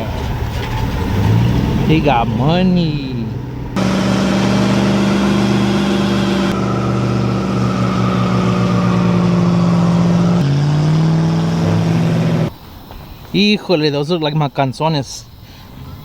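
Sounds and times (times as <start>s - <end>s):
vehicle engine at high revs: 0.0s - 12.5s.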